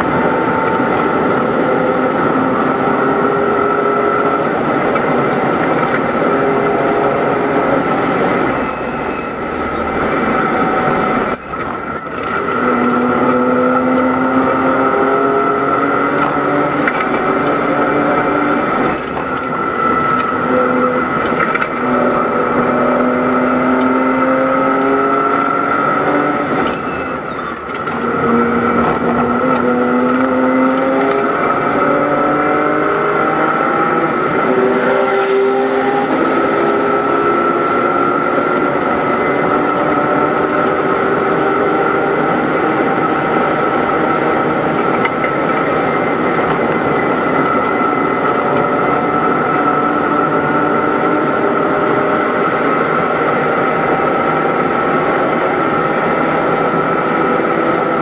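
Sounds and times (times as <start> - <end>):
steady whine: 0.0 - 32.2
car engine accelerating hard: 0.0 - 58.0
wind and road noise: 0.0 - 58.0.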